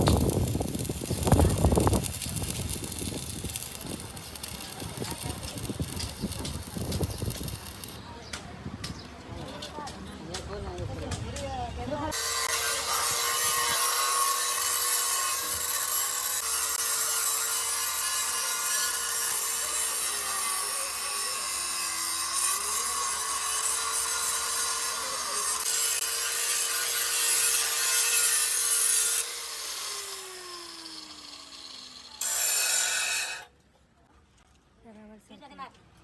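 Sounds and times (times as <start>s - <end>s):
electric grinder on sheet metal: 0.0s - 8.0s, 12.1s - 33.5s
grinder disc winding down: 0.0s - 8.0s.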